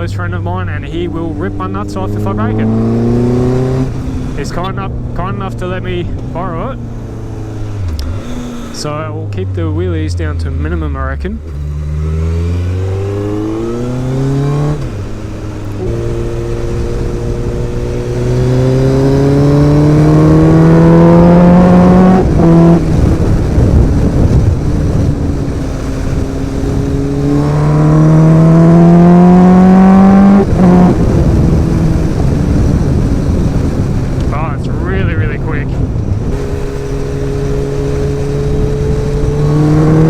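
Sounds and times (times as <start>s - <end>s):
motorcycle engine accelerating: 0.0s - 40.0s.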